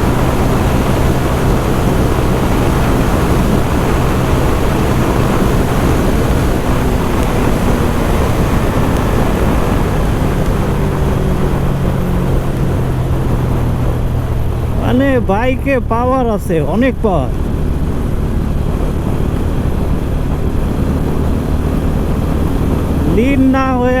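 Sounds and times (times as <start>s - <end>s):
motorcycle engine running: 0.0s - 24.0s
wind rush on microphone: 0.0s - 24.0s.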